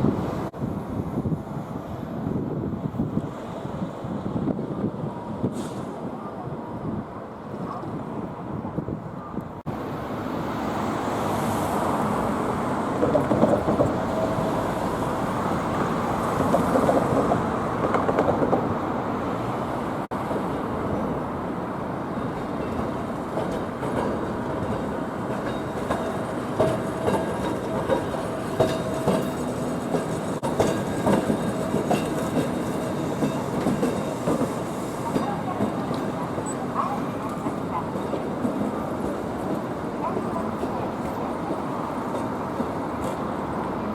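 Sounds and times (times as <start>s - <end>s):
streetcar wheels clacking over rail joints: 12.0s - 19.5s, 22.1s - 43.9s.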